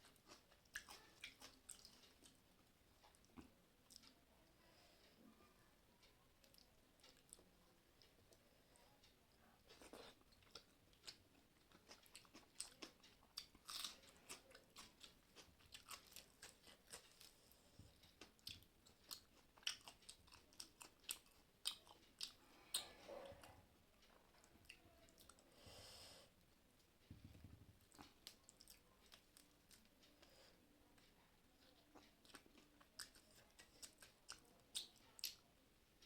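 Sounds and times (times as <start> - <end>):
person chewing and crunching food: 0.0 - 2.4, 9.6 - 25.4, 27.8 - 30.4, 31.0 - 35.5.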